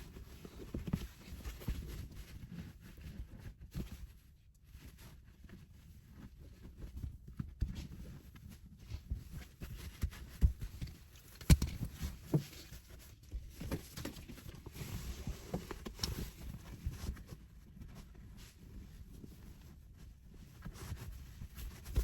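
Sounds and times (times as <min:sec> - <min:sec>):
handling taps and knocks: 0:09.7 - 0:14.6.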